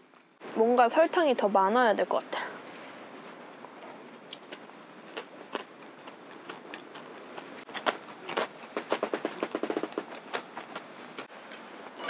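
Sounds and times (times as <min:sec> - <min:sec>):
caramelised sugar crust crunching: 0:03.8 - 0:08.6.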